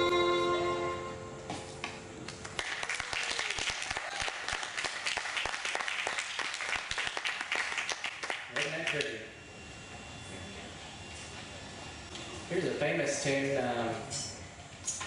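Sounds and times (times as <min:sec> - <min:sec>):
fiddle note: 0:00.0 - 0:01.6
audience applause: 0:02.4 - 0:09.1.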